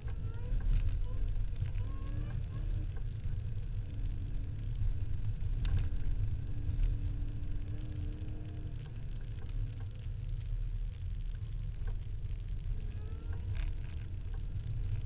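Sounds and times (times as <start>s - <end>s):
car engine rumble from inside cabin: 0.0s - 15.0s.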